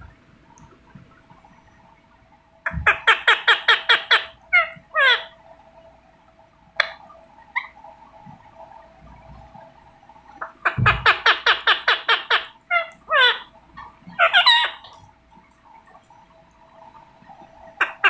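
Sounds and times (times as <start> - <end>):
parakeet squawks falling in pitch: 2.7 - 5.4, 10.4 - 15.1
parakeet screeching: 2.9 - 5.4, 10.6 - 13.5, 14.2 - 15.0.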